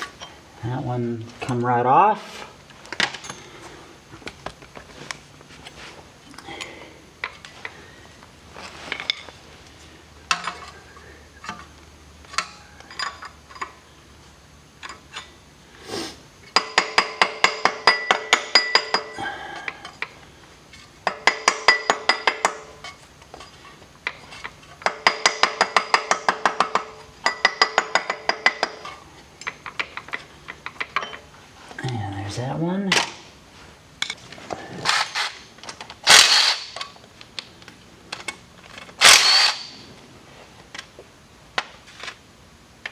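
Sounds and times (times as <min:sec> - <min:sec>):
ratchet wrench clicking: 0:36.1 - 0:36.9, 0:39.0 - 0:39.8.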